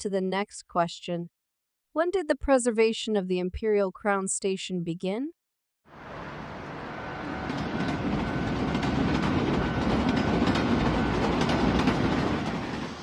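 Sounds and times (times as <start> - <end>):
train wheels clattering on track: 7.2 - 13.0.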